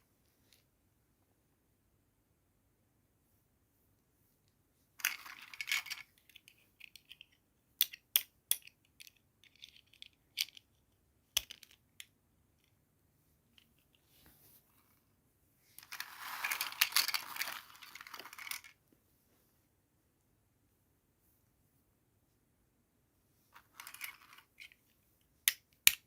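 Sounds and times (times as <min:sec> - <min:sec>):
plastic pieces clicking and tapping: 0:05.0 - 0:10.7, 0:11.3 - 0:12.1, 0:25.4 - 0:26.0.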